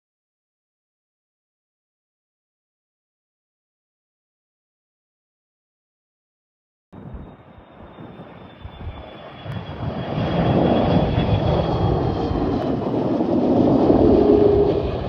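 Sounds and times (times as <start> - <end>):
jet airliner engines rumbling: 7.0 - 15.0.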